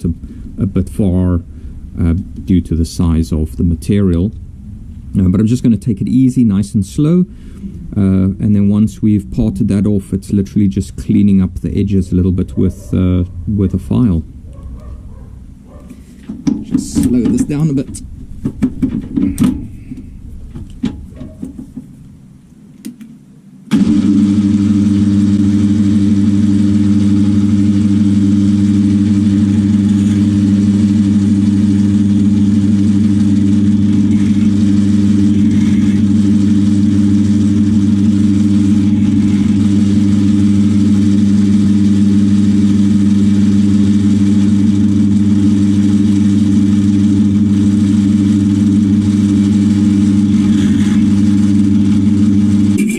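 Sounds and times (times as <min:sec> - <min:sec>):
lathe motor humming: 0:23.7 - 0:52.9.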